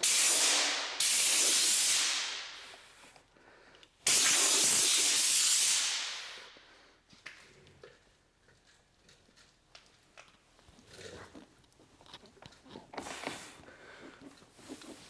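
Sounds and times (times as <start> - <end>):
spray hissing: 0.0 - 3.2, 4.1 - 6.6.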